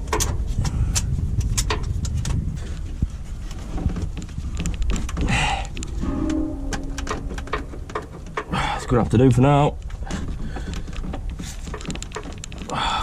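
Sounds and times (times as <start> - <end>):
metallic clicks and knocks: 3.8 - 8.6, 9.8 - 12.7
low rumble: 4.4 - 8.8
short metal scrape: 5.8 - 8.3.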